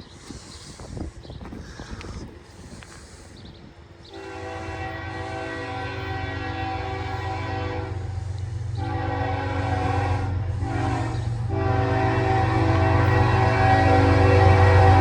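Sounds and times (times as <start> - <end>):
locomotive air horn blasts: 4.1 - 15.0.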